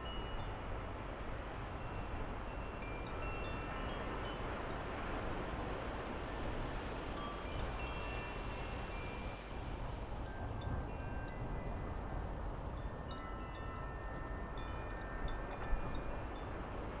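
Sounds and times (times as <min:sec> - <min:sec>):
wind chimes ringing: 0:00.0 - 0:00.5, 0:01.8 - 0:04.9, 0:07.2 - 0:09.5, 0:10.2 - 0:16.9.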